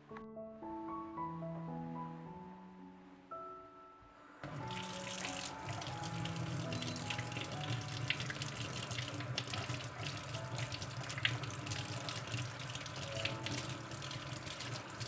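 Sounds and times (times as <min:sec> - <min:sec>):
tap running into sink: 0:04.5 - 0:15.0.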